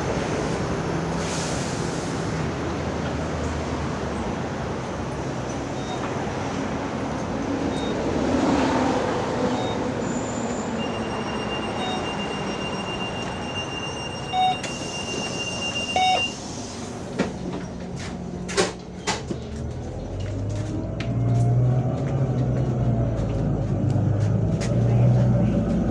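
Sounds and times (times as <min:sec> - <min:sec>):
bus ride noise: 0:00.0 - 0:25.9
short beeps: 0:10.8 - 0:16.4.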